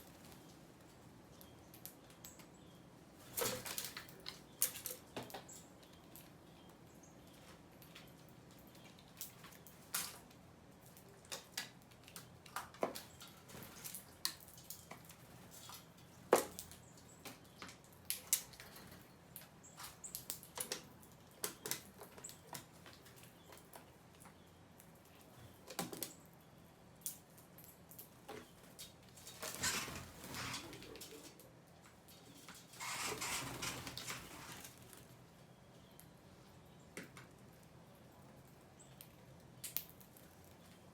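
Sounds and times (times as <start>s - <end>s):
wings fluttering: 28.6s - 31.4s, 32.2s - 35.1s.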